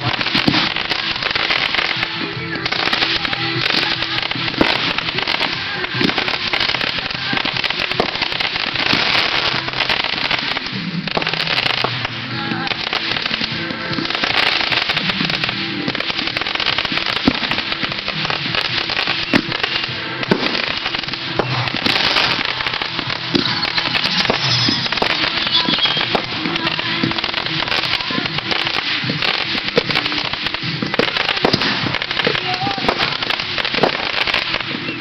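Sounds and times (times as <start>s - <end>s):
fireworks crackling and popping: 0.0s - 35.0s
music: 0.0s - 35.0s
sharp firework bangs: 0.0s - 35.0s.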